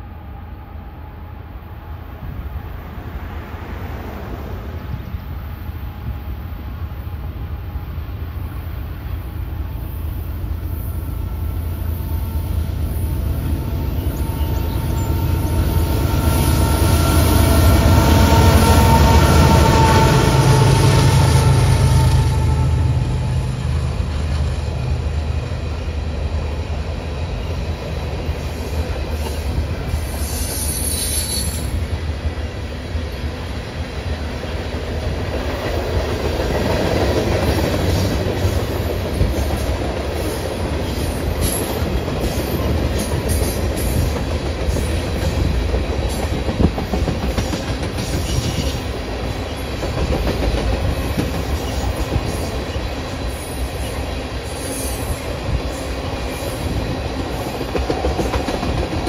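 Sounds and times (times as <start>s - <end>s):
train wheels rumbling on rail: 0.0s - 59.0s
high wheel squeal: 30.0s - 31.8s.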